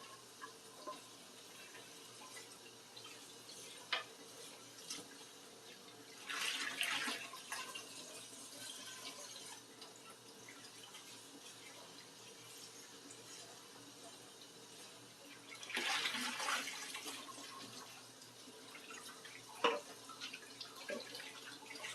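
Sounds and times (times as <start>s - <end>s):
tap water running into sink: 0.0s - 21.9s.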